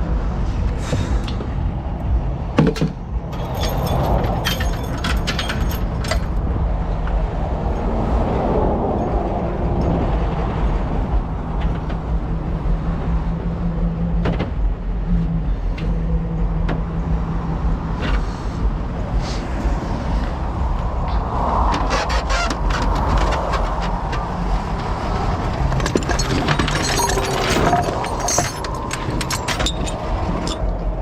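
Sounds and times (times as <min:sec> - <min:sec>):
metallic clinks and jingles: 0:03.2 - 0:06.4, 0:25.7 - 0:31.0.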